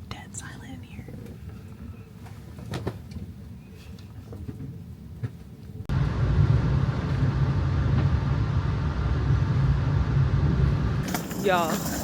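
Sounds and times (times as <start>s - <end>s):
vehicle rumbling from inside: 5.9s - 11.1s.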